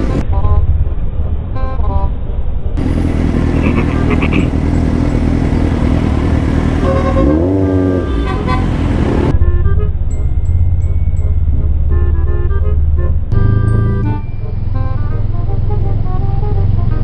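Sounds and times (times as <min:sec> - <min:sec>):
road noise: 0:00.0 - 0:17.0
motorcycle engine revving: 0:02.8 - 0:09.4
short high horn toots: 0:06.8 - 0:08.9.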